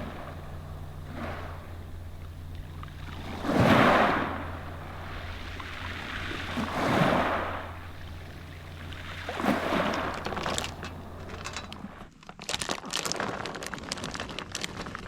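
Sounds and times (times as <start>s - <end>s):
sea waves washing in: 0.0s - 12.0s
steady low hum: 0.0s - 12.1s.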